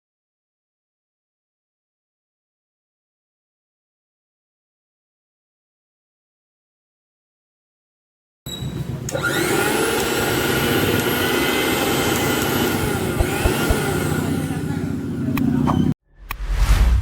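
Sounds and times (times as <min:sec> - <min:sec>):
mixer grinder motor whining: 0:09.0 - 0:15.4.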